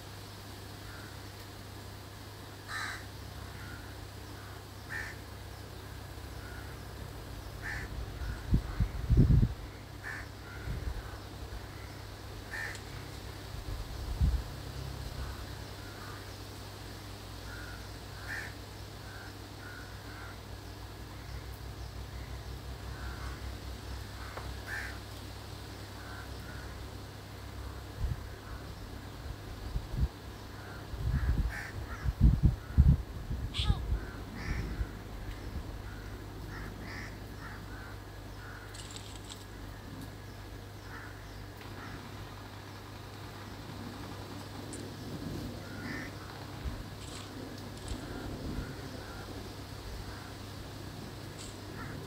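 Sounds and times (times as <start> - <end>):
low steady rumble: 0.0 - 52.0
bird giving short calls: 33.5 - 34.9
short bird calls: 33.5 - 39.4.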